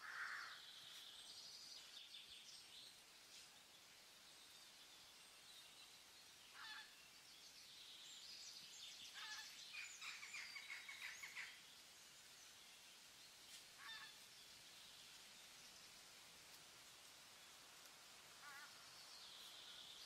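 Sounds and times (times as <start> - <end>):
faint bird calls: 0.0 - 1.1, 6.5 - 7.0, 9.1 - 11.6, 13.8 - 14.3, 18.3 - 20.0.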